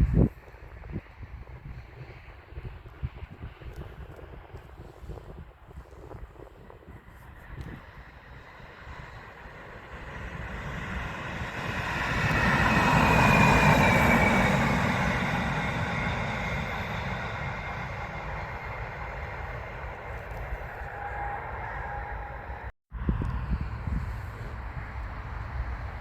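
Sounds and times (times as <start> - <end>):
train passing: 7.2 - 26.0.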